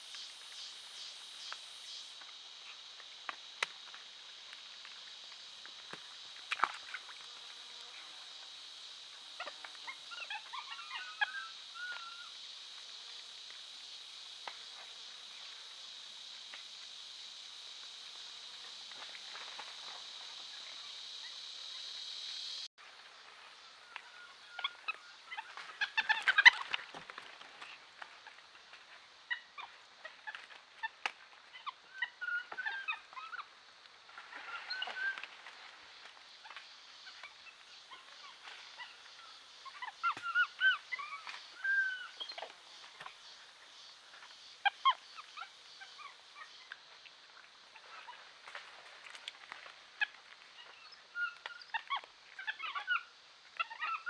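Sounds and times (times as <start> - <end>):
steady hiss: 0.0 - 10.0, 11.5 - 23.7.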